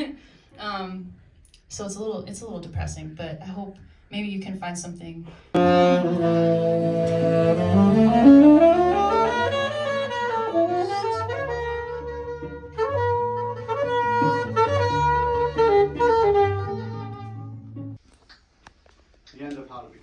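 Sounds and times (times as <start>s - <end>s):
low cello notes: 5.6s - 18.0s
saxophone melody: 5.6s - 18.0s.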